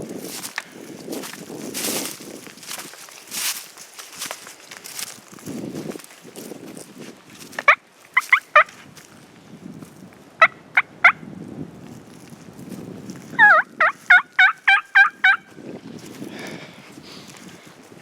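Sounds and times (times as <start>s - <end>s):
turkey calls: 7.6s - 8.8s, 10.4s - 11.2s, 13.3s - 15.5s.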